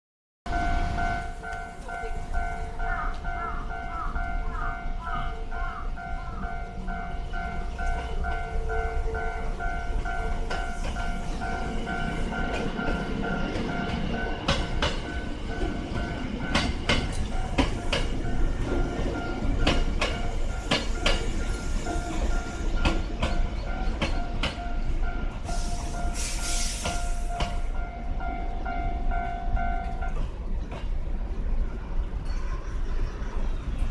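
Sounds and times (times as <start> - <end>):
level-crossing warning bell: 0.5 - 30.5
electric train rumbling: 0.5 - 33.9
wheels clicking over rail joints: 6.7 - 25.3
short hiss: 25.5 - 27.3.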